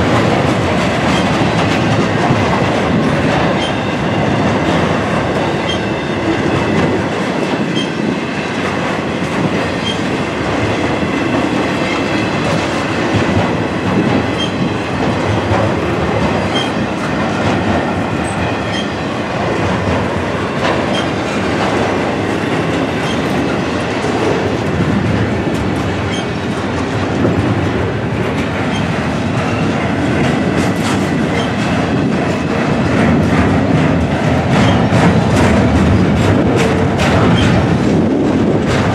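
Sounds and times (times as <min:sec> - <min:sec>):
freight train wheels clacking: 0:00.0 - 0:38.9.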